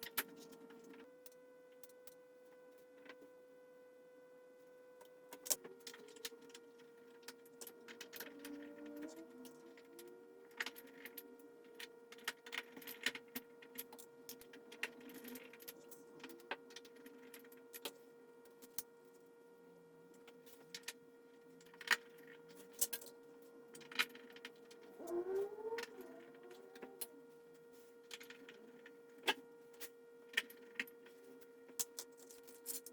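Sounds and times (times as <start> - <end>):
faint electrical hum: 0.0 - 32.9.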